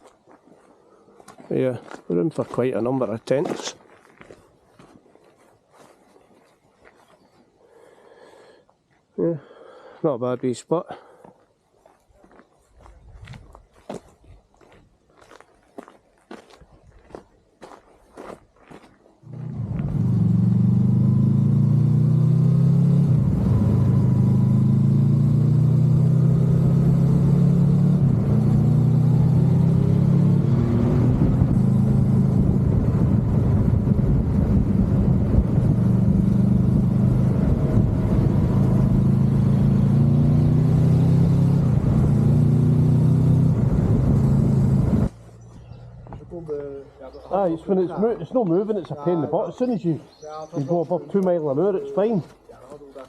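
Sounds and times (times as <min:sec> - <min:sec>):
road and wind noise: 0:12.6 - 0:15.0, 0:19.2 - 0:53.0.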